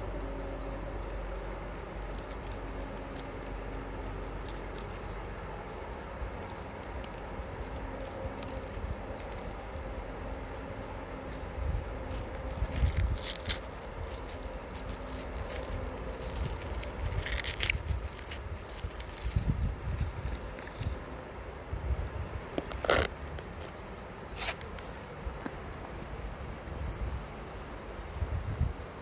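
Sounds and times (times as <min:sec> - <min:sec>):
steady low rumble: 0:00.0 - 0:27.3
crackling bursts: 0:01.9 - 0:10.0, 0:12.1 - 0:21.1, 0:22.5 - 0:23.8.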